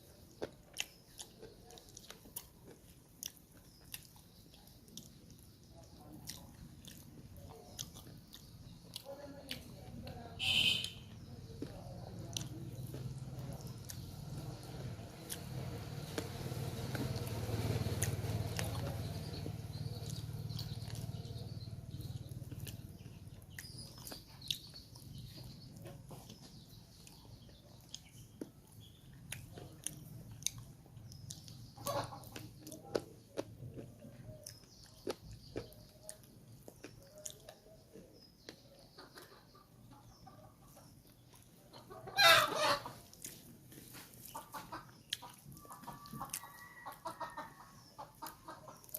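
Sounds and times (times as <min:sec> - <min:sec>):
chewing and smacking: 0:00.0 - 0:10.2, 0:11.1 - 0:40.2, 0:43.0 - 0:47.2, 0:47.8 - 0:48.9
chickens clucking: 0:11.4 - 0:48.9
chicken calling loudly: 0:42.1 - 0:43.0.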